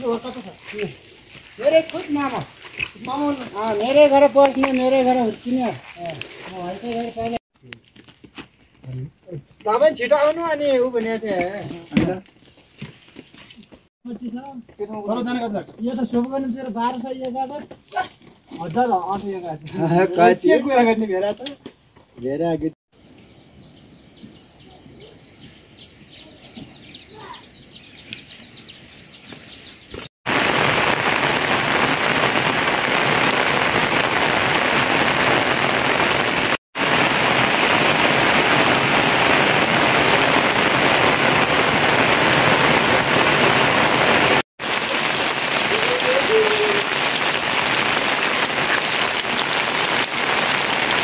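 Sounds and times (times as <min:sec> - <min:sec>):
heavy rain on ground and puddles: 0:00.0 - 0:07.4, 0:30.2 - 0:51.0
faint outdoor ambience: 0:00.0 - 0:32.5.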